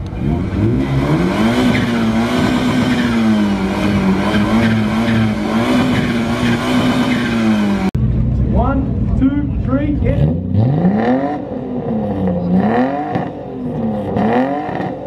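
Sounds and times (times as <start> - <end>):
car engine revving loud exhaust: 0.0 - 15.0.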